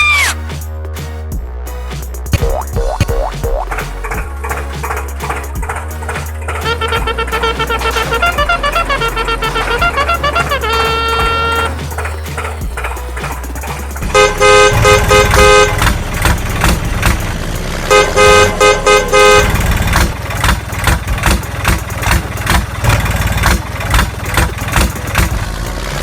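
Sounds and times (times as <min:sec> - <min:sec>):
vehicle horn two-tone beeps: 0:06.7 - 0:11.8, 0:14.2 - 0:15.8, 0:17.9 - 0:19.6.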